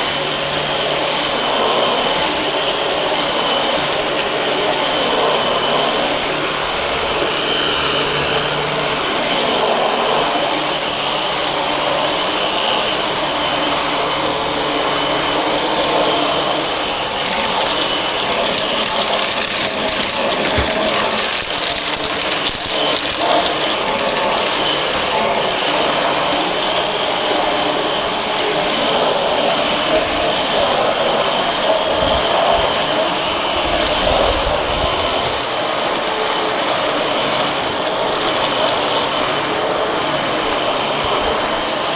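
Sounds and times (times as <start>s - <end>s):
vacuum cleaner motor whine: 0.0s - 41.9s
crackling: 15.3s - 26.5s.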